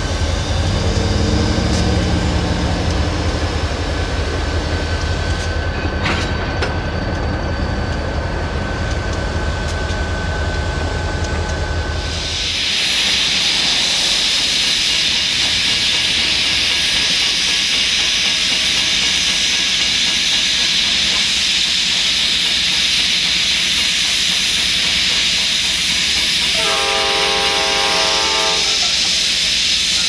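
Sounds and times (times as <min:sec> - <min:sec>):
locomotive air hiss: 0:11.9 - 0:30.0
train horn chord: 0:26.5 - 0:28.9.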